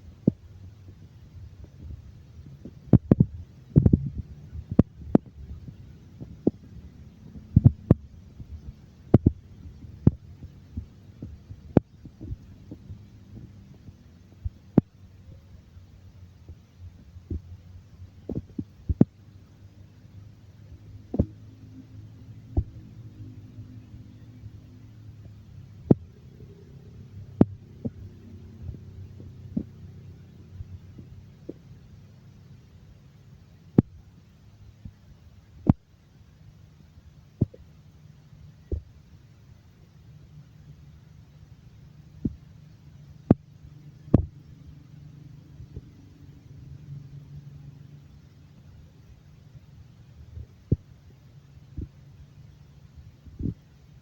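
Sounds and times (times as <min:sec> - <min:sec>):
low rumble: 0:00.0 - 0:32.3
low steady hum: 0:00.0 - 0:54.0
sharp knocks and soft thuds: 0:01.6 - 0:15.0, 0:20.7 - 0:21.6, 0:22.5 - 0:23.1, 0:44.1 - 0:44.4.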